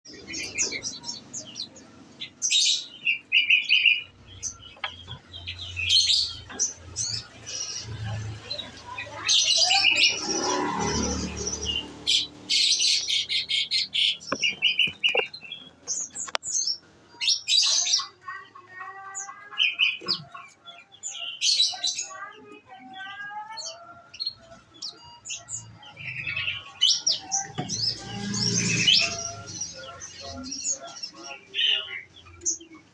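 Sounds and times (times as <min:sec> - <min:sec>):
bird chirping and trilling: 0:00.1 - 0:32.9.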